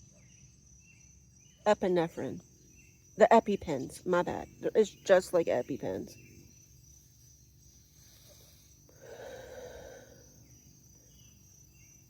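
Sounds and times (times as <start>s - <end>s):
crickets chirring: 0.0s - 12.0s
person breathing: 8.0s - 10.5s.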